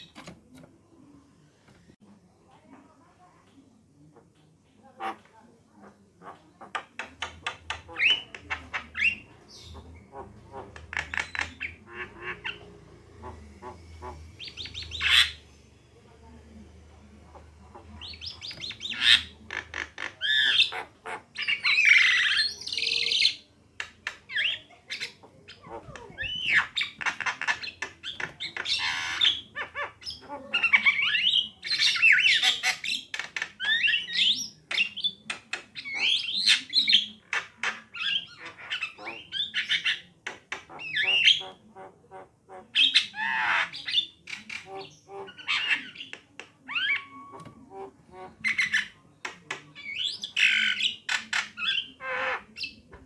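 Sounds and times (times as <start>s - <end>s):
birds squawking and chirping: 0.0s - 0.7s, 5.0s - 53.0s.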